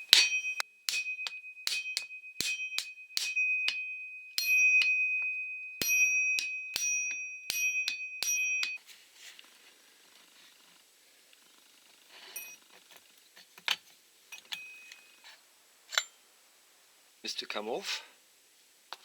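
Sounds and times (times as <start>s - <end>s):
hammer striking metal tool: 0.0s - 8.8s.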